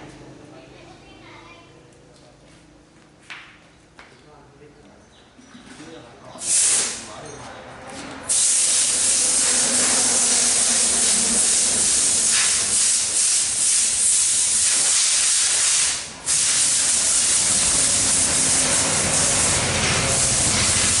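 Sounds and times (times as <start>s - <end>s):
loud pressurized hiss: 6.4s - 7.2s, 8.3s - 21.0s.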